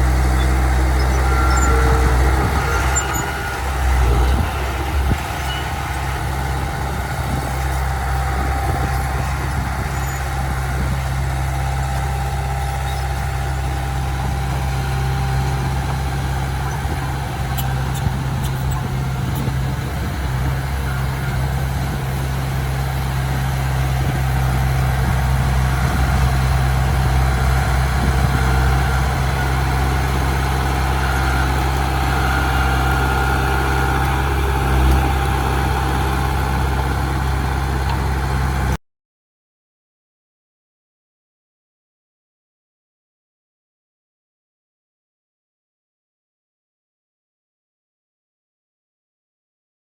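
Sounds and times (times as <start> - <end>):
heavy machinery diesel engine: 0.0 - 38.8.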